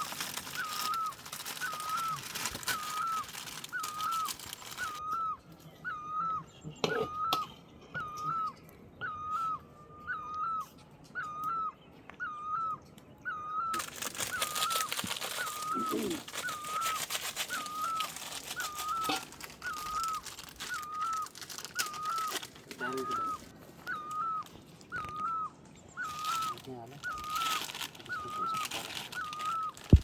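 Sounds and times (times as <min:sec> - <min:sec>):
bird repeating hooked call: 0:00.0 - 0:05.3, 0:13.3 - 0:30.0.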